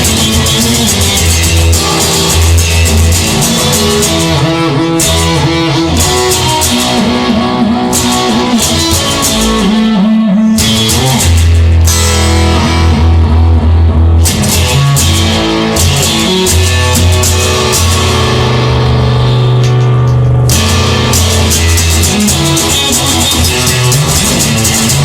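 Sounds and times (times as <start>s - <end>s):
bass line: 0.0s - 25.0s
electric guitar melody with bent notes: 0.0s - 25.0s.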